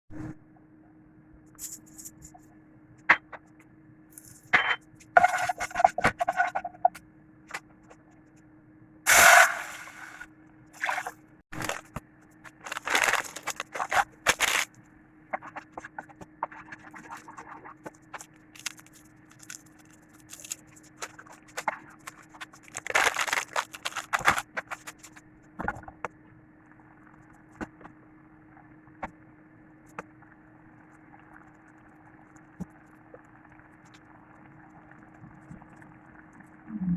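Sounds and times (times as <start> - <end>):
faint steady hum: 0.2 - 36.9
food preparation clicks and scrapes: 4.2 - 7.6, 10.8 - 14.7, 15.4 - 25.2
loud noisy bursts: 9.1 - 10.2.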